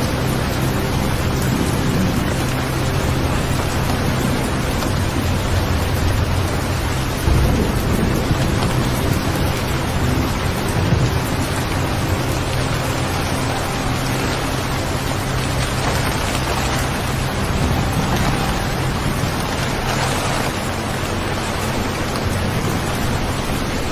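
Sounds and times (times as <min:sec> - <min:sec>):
steady rain: 0:00.0 - 0:23.9.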